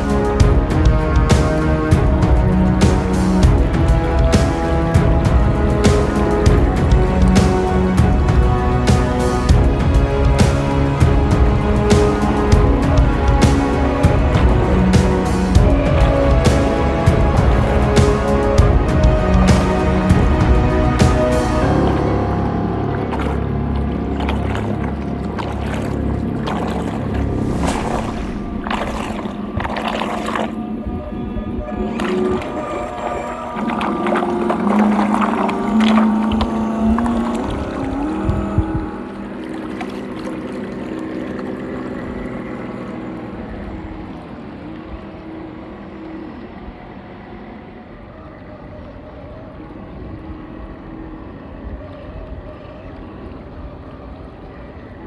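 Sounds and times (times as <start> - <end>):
water washing: 0.0 - 22.2
background music: 0.0 - 47.5
water churning and splashing: 32.0 - 45.0.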